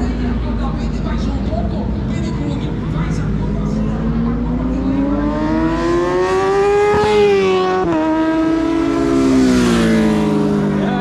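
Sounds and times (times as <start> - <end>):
motorcycle engine accelerating: 2.1 - 11.0.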